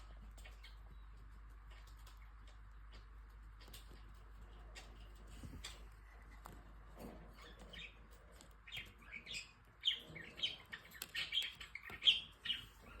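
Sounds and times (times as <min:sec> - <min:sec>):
cockatiel chirping: 0:08.6 - 0:13.0.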